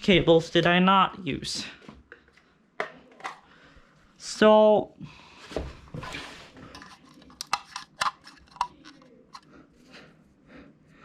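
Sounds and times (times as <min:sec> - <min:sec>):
wires being handled: 0:06.0 - 0:09.9.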